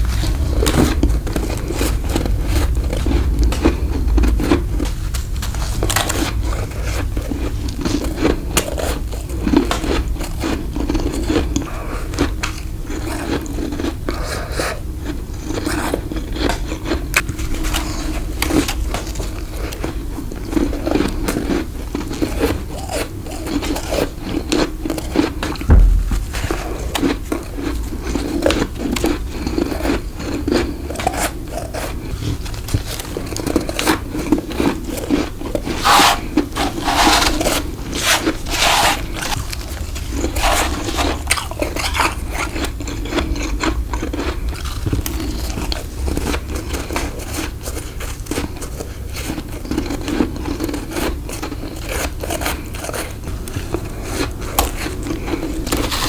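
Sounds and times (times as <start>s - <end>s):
chewing crunchy frost: 0.1s - 56.0s.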